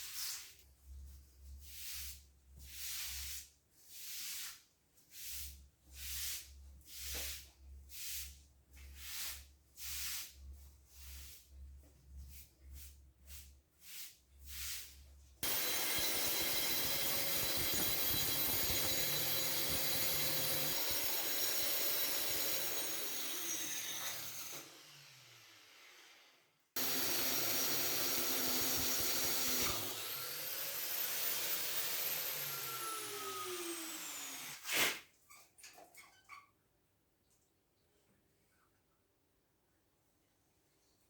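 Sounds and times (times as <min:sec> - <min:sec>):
electric motor whining: 0:15.4 - 0:25.2, 0:26.8 - 0:34.4.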